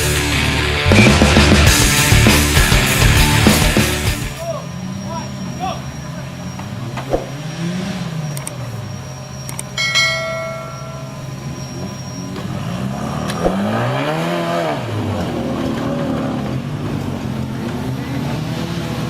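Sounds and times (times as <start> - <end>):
vehicle engine revving: 0.0 - 9.8, 10.6 - 19.0
sharp metallic clang: 9.8 - 11.4.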